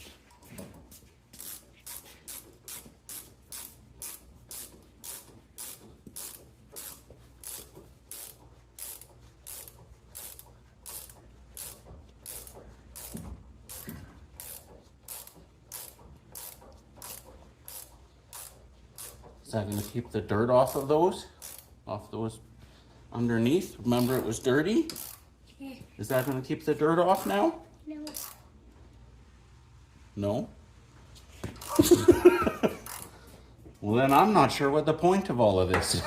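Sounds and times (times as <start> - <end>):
ratchet clicking: 1.3 - 21.8, 23.9 - 25.3, 26.0 - 26.5, 27.1 - 27.4, 28.0 - 28.5, 31.6 - 33.2.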